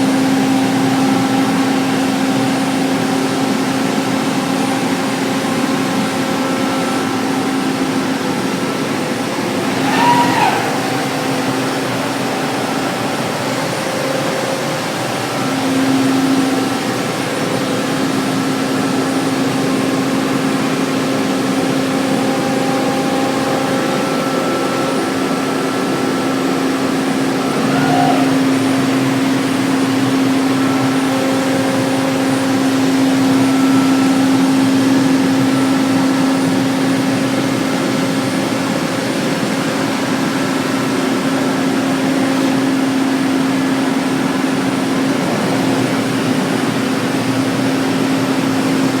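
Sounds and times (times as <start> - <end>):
cnc router humming and hissing: 0.0 - 49.0
short rising whine: 9.4 - 13.2.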